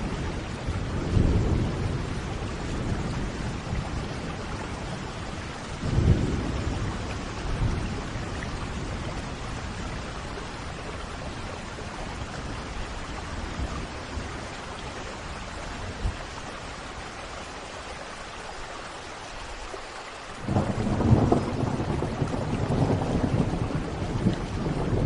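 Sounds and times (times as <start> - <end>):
thunder rumbling: 0.0 - 14.5, 20.4 - 25.0
steady rain: 0.0 - 25.0.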